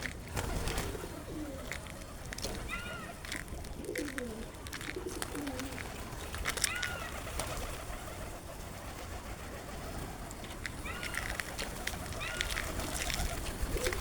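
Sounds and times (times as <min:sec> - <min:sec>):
birds chirping: 0:00.0 - 0:08.6, 0:09.6 - 0:14.0
low background noise: 0:00.0 - 0:14.0
low falling bird call: 0:10.5 - 0:14.0.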